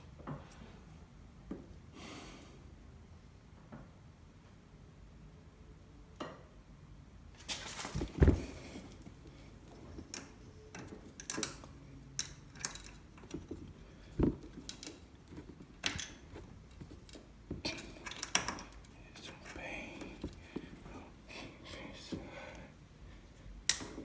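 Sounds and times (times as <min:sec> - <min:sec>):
clicks and rattles of hand work: 0:07.4 - 0:21.0.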